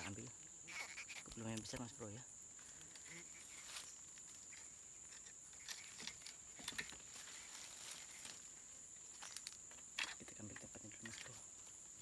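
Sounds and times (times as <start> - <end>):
high-pitched insect drone: 0.0 - 6.1.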